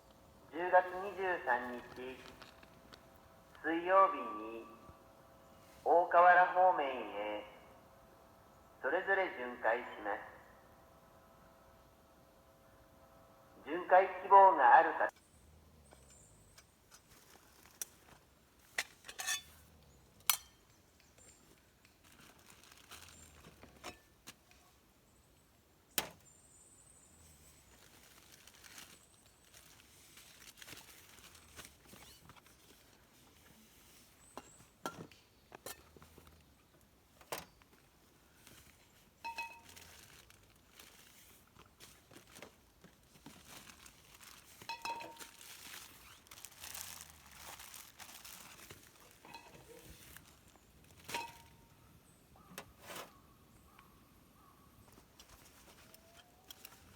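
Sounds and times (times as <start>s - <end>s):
plastic packaging crinkling: 21.9s - 23.8s, 27.6s - 32.9s, 38.4s - 51.5s.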